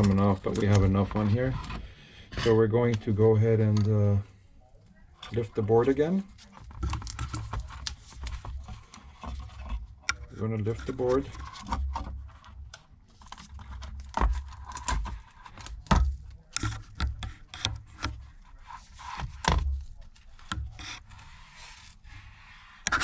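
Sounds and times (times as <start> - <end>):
tools clicking and scraping: 5.3 - 23.0.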